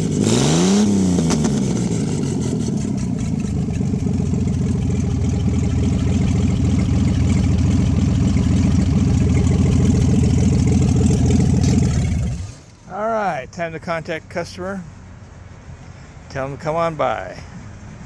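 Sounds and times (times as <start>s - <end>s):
engine throttle blip: 0.0s - 12.9s
car engine idling: 0.0s - 18.0s.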